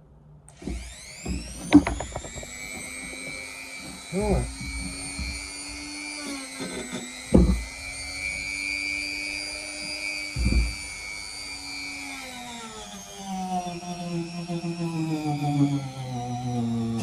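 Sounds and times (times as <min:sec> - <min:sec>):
rotary tool whining: 0:00.5 - 0:17.0
dull thumps: 0:00.6 - 0:05.8, 0:06.7 - 0:08.1, 0:10.4 - 0:10.9.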